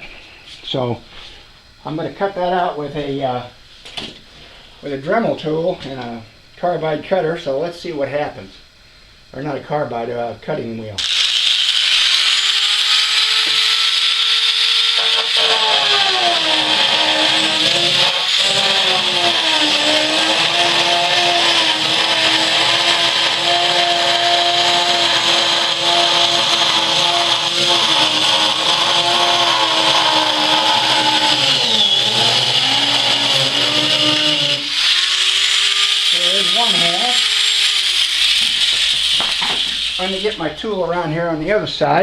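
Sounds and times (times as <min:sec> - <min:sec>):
rotary tool cutting metal: 0:11.0 - 0:40.4.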